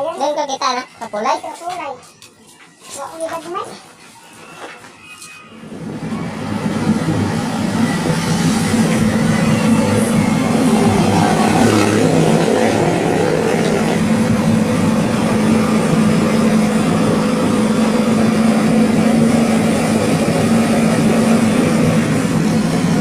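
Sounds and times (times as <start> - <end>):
engine droning steadily: 5.6 - 23.0.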